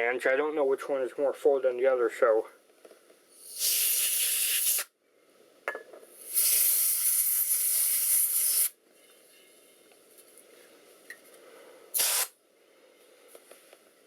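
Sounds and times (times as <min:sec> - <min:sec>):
compressed air duster hissing: 0:03.4 - 0:04.9, 0:06.2 - 0:08.7, 0:11.9 - 0:12.4.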